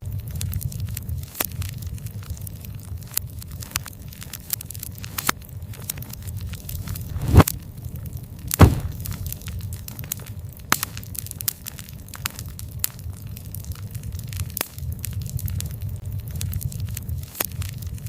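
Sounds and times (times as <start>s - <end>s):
campfire crackling and popping: 0.1s - 18.0s
low rumble: 6.9s - 7.5s.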